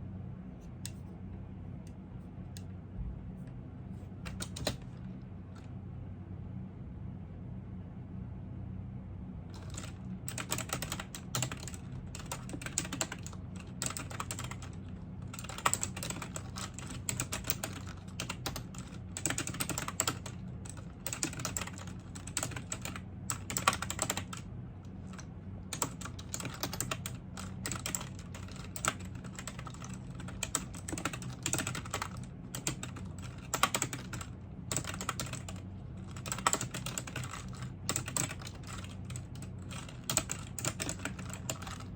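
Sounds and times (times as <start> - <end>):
steady low hum: 0.0 - 41.9
typing on computer keyboard: 4.2 - 4.9, 9.5 - 24.4, 25.0 - 41.9.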